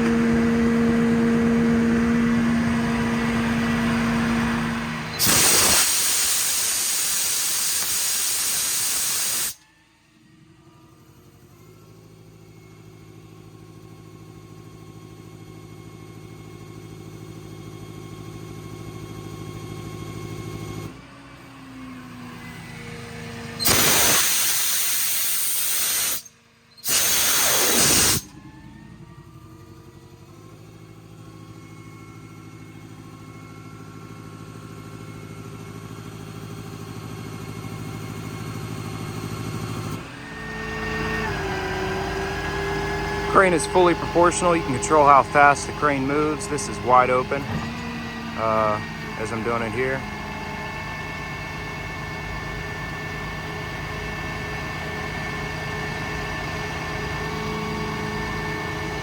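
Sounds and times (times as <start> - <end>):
air compressor humming: 0.0 - 9.6, 23.5 - 37.8, 41.2 - 53.8
compressed air hissing: 5.2 - 9.6, 23.6 - 28.3.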